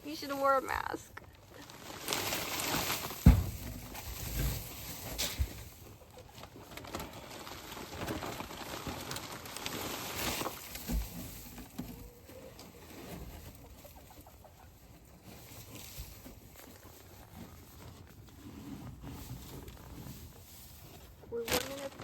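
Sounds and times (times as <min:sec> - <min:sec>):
straw rustling and crackling: 0:00.0 - 0:22.0
poultry clucking softly: 0:11.9 - 0:15.9.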